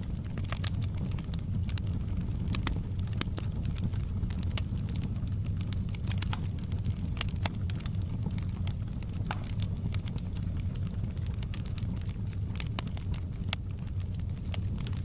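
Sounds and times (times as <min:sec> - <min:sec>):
fire crackling: 0:00.0 - 0:15.0
low rumble of burning: 0:00.0 - 0:15.0
sharp pops and snaps: 0:00.2 - 0:13.7.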